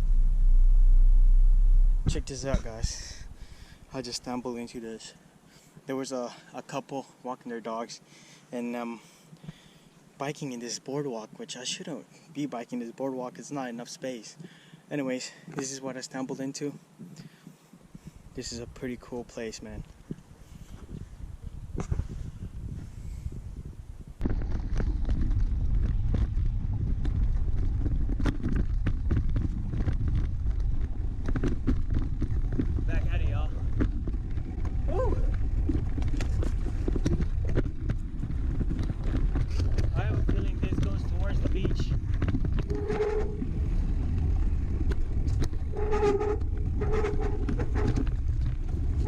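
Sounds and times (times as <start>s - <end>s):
wind rumbling on microphone: 0.0s - 4.6s, 17.0s - 49.0s
bike clicks and rattles: 24.2s - 49.0s.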